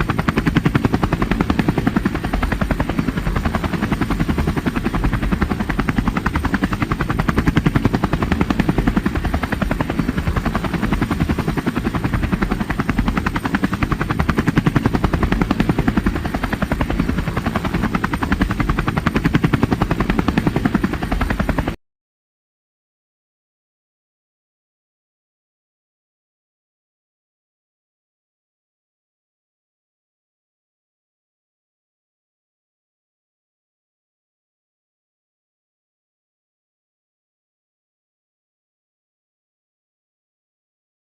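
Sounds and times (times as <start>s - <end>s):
helicopter rotor chop: 0.0s - 21.8s.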